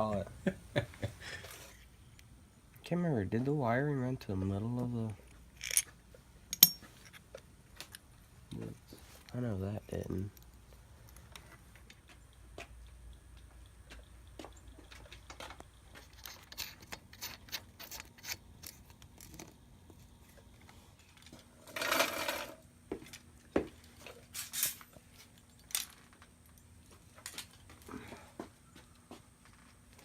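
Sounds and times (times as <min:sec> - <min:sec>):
metal tools clinking: 0:05.6 - 0:05.9, 0:06.5 - 0:08.0.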